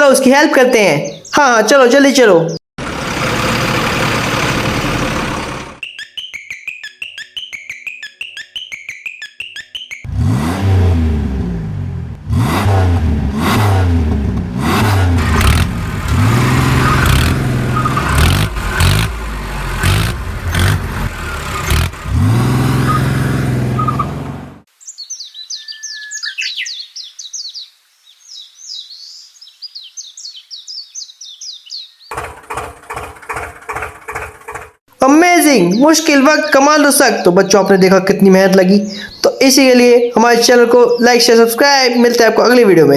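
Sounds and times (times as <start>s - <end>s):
birds chirping: 0.0s - 10.4s, 15.9s - 32.2s, 34.9s - 42.9s
engine revving: 2.8s - 5.8s, 10.0s - 24.7s, 32.1s - 34.8s.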